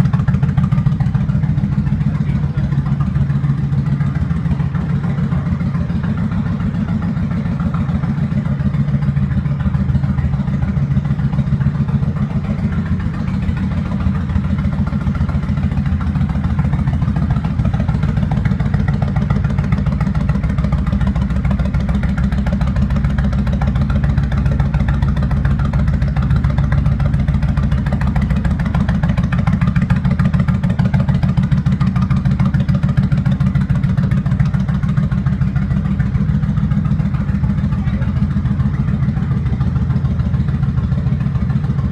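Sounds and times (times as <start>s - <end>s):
motorcycle engine idling: 0.0s - 41.9s.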